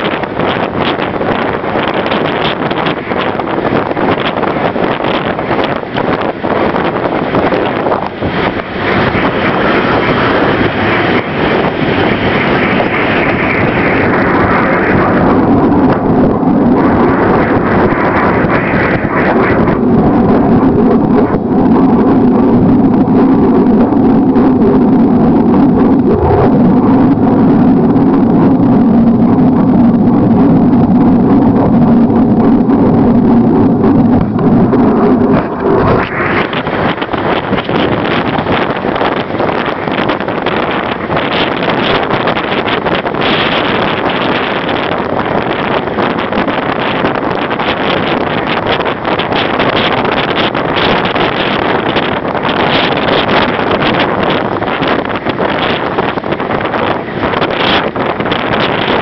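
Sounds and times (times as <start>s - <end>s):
train running noise: 0.0s - 16.1s, 34.1s - 59.0s
low hum: 0.0s - 59.0s
wind on microphone: 0.0s - 59.0s.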